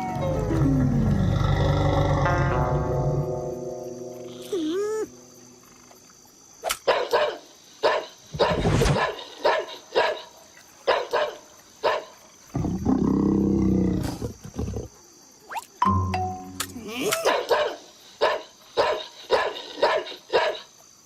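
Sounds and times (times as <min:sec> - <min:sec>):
cartoon animal long cry: 0:04.4 - 0:05.2
cartoon animal barking and yelping: 0:16.6 - 0:20.6.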